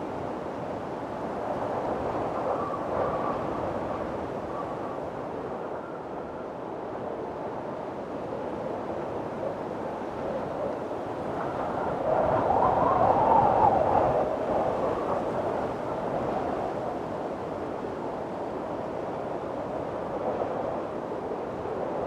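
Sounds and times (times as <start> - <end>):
strong wind blowing: 0.0 - 22.0.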